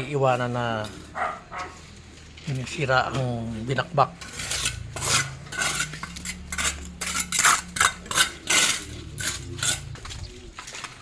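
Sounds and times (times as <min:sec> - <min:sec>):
shovel scraping through gravel: 0:03.2 - 0:11.0.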